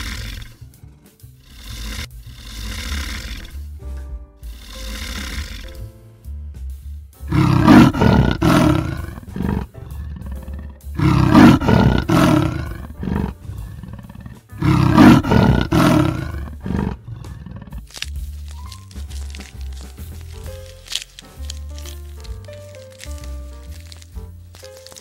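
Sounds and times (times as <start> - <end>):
animal roaring: 0.0 - 0.6, 1.4 - 3.7, 4.5 - 5.7, 7.3 - 18.0
background music: 0.0 - 25.0.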